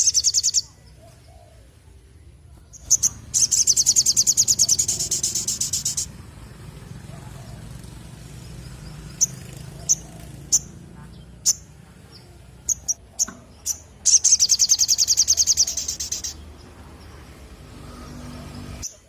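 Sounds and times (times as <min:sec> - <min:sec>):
bird fast trill: 0:00.0 - 0:00.8, 0:02.7 - 0:06.2, 0:07.6 - 0:11.8, 0:12.6 - 0:16.5.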